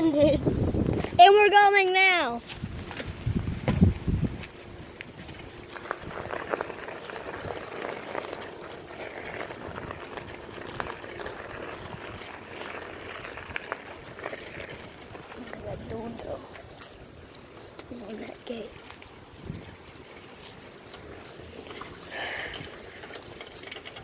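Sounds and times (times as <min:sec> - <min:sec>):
bicycle tyres rolling: 0:00.0 - 0:24.0
small clicks and rattles: 0:05.0 - 0:24.0.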